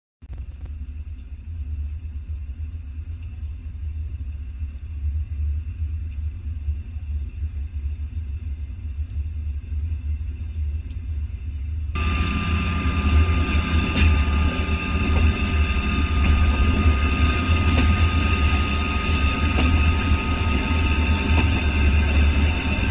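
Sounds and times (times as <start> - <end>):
wind buffeting microphone: 3.3 - 22.9
steady high tone: 12.0 - 22.9.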